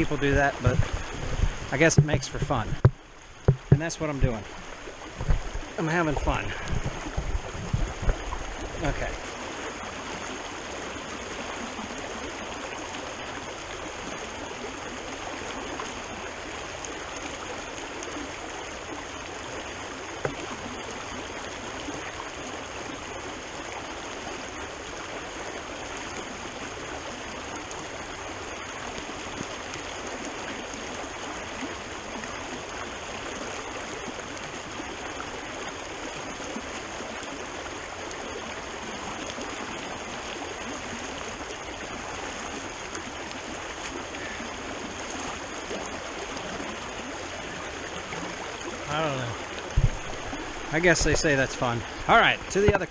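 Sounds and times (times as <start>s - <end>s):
creek water rushing: 0.0s - 52.9s
short knock: 2.8s - 3.9s.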